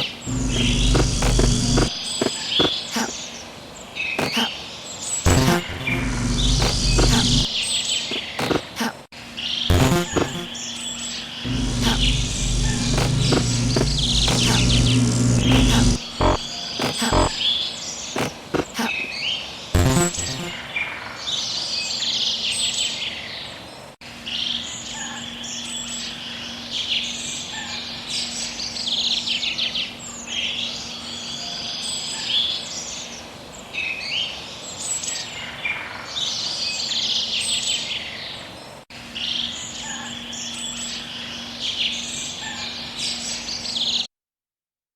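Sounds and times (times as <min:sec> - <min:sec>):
faint steady hum: 0:00.2 - 0:02.0, 0:05.3 - 0:07.6, 0:11.5 - 0:17.4.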